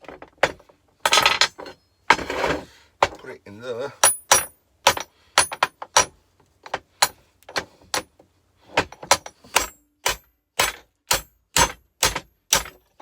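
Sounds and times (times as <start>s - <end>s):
hammer striking metal: 9.1s - 12.8s.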